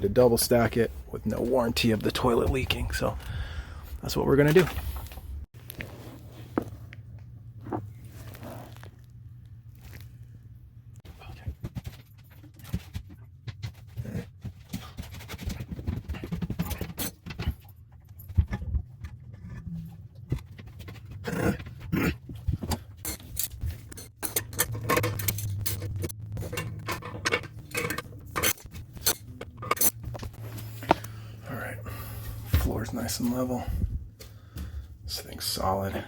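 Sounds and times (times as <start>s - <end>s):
low steady hum: 0.0s - 14.0s, 16.2s - 36.0s
metallic clinks and scrapes: 23.0s - 31.0s.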